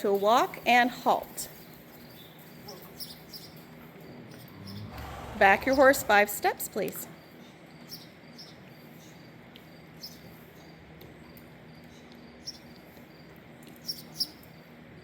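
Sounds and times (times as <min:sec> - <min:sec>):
faint low hum: 0:03.9 - 0:07.4.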